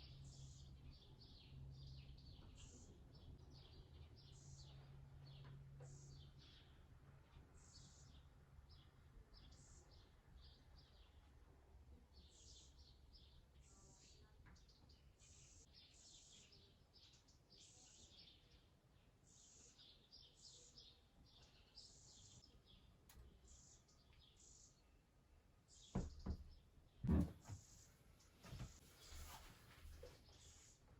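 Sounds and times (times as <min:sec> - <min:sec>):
small birds chirping: 0:00.0 - 0:30.9
dull thumps: 0:26.0 - 0:27.7.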